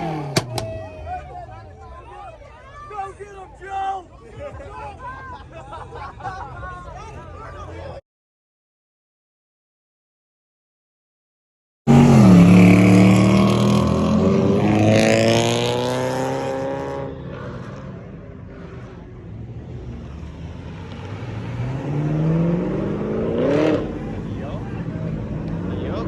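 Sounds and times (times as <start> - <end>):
car accelerating hard: 0.0 - 1.0, 11.9 - 26.0
car engine revving: 0.0 - 1.0, 11.9 - 26.0.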